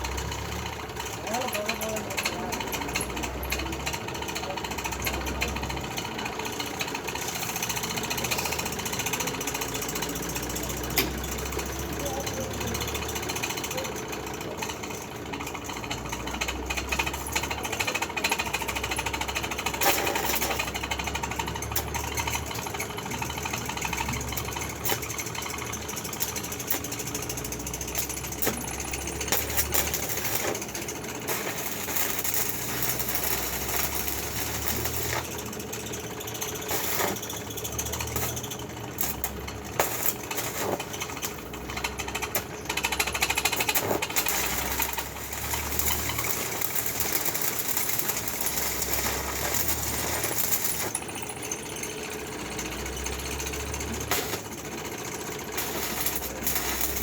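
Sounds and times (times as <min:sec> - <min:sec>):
welding arc crackling: 0:00.0 - 0:57.0.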